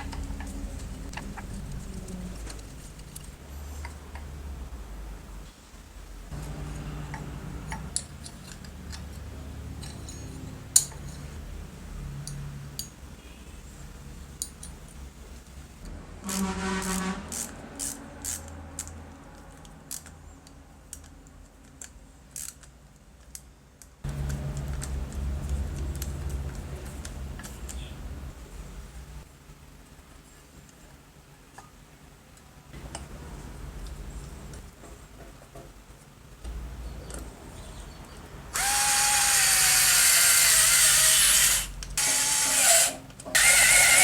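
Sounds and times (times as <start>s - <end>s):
small metal parts clicking: 7.1s - 11.4s, 16.8s - 27.8s.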